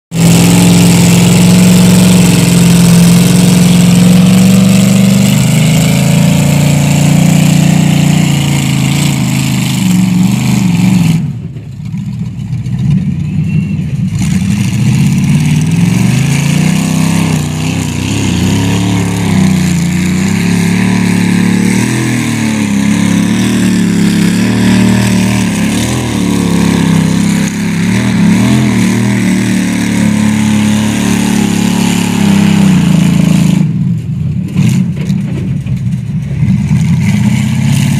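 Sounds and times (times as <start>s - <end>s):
truck engine revving: 0.1s - 37.9s.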